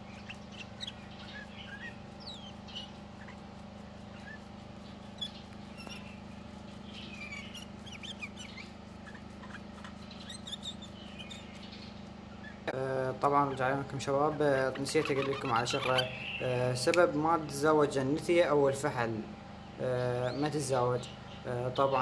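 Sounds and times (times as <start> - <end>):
caged birds chirping: 0.0 - 22.0
steady low hum: 0.0 - 22.0.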